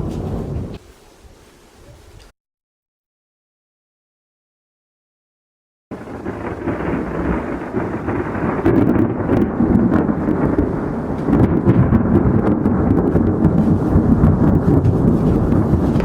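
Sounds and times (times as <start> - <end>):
thunder rumbling: 0.0 - 0.8, 5.9 - 16.0
rain falling: 0.0 - 1.8, 5.9 - 16.0.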